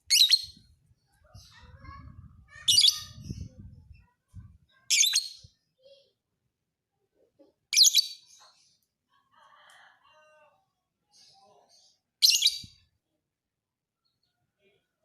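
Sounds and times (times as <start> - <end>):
bird shrill chirping: 0.0 - 0.6, 2.6 - 3.4, 12.2 - 12.8.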